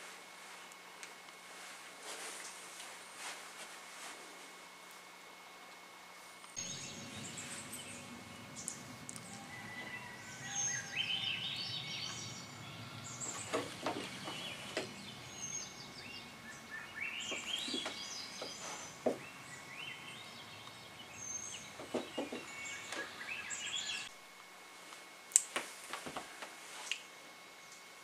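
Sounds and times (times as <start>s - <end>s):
outdoor background noise: 0.0s - 28.0s
songbird singing: 6.6s - 24.2s
soft knocks: 17.3s - 19.2s, 21.8s - 22.5s.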